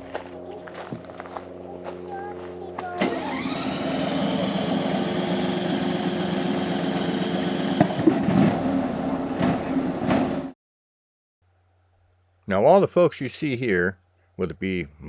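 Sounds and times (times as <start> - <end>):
miniature train engine hum: 0.0 - 7.9.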